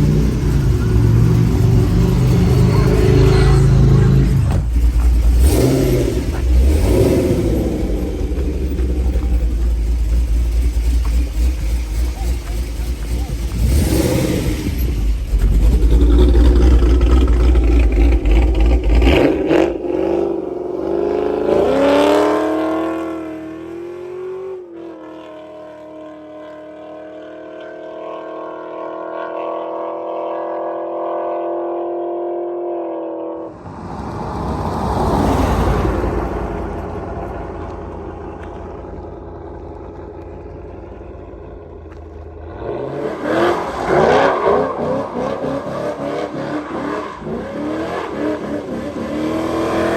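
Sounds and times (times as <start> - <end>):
truck engine revving: 0.0 - 24.6, 33.4 - 49.9.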